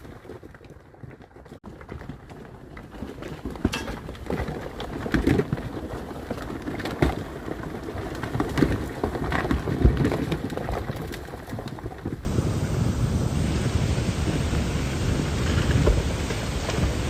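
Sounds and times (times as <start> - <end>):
rocks tumbling and clattering: 0.0 - 12.4, 14.4 - 17.0
low rumble: 12.3 - 17.0
steady rushing noise: 12.3 - 17.0.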